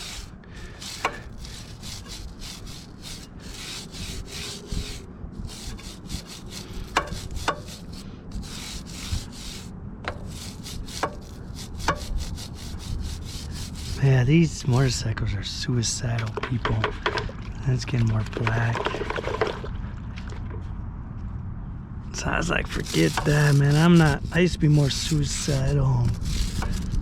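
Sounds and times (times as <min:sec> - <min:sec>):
scrubbing motorcycle chain: 0:00.0 - 0:15.0, 0:22.2 - 0:27.0.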